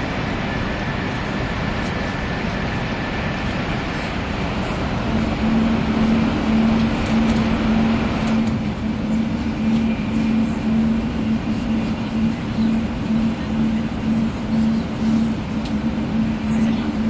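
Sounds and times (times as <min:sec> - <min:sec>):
steady low hum: 0:00.0 - 0:17.0
train wheels rumbling: 0:03.7 - 0:17.0.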